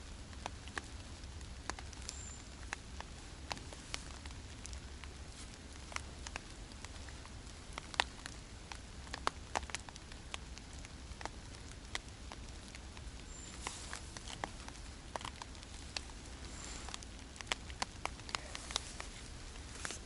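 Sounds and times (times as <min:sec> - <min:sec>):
rain drops ticking: 0:00.0 - 0:20.0
rain hiss: 0:00.0 - 0:20.0.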